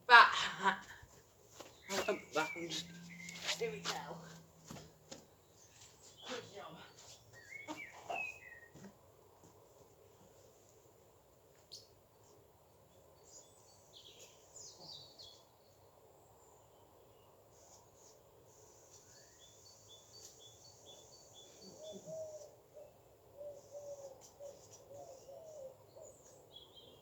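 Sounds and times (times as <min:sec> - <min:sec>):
faint birdsong chirps: 0:01.4 - 0:27.0
low bird call: 0:01.9 - 0:04.3.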